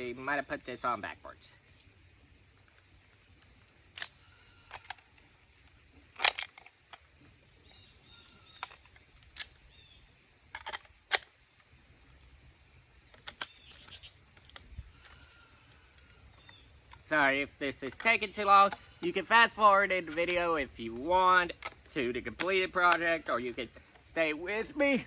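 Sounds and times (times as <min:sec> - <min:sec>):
plastic toy parts clicking: 0:02.7 - 0:07.1, 0:08.5 - 0:09.7, 0:10.5 - 0:11.3, 0:13.1 - 0:15.2, 0:17.7 - 0:24.1
faint bird chirps: 0:07.6 - 0:08.8, 0:09.6 - 0:10.2, 0:13.4 - 0:14.2, 0:14.9 - 0:16.8.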